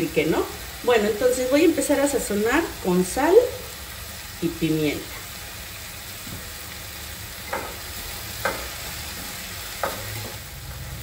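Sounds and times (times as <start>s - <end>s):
vegetables sizzling in oil: 0.0s - 11.0s
utensil knocking against pan: 7.5s - 7.8s, 8.4s - 8.8s, 9.8s - 10.4s.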